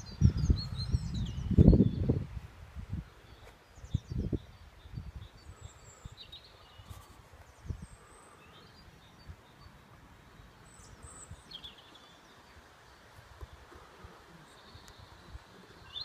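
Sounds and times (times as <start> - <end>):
small birds chirping: 0.0 - 2.3, 2.9 - 16.0
outdoor hiss: 5.4 - 16.0.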